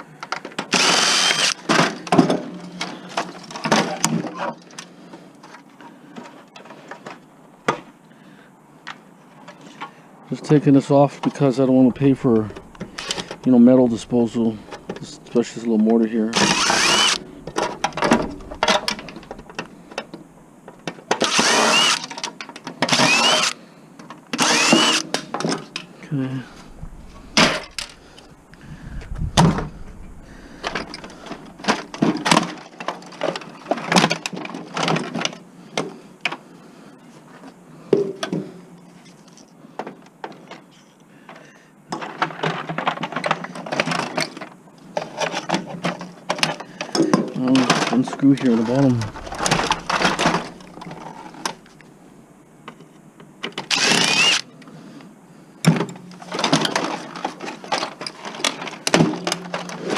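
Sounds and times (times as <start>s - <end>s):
plastic and metal parts clattering: 0.2s - 5.6s, 12.0s - 25.9s, 26.5s - 35.4s, 41.3s - 51.8s, 55.7s - 59.9s
power drill whining: 0.7s - 1.7s, 16.3s - 20.1s, 21.2s - 22.1s, 22.9s - 23.6s, 24.4s - 25.1s, 26.5s - 32.0s, 49.1s - 51.5s, 53.7s - 54.5s.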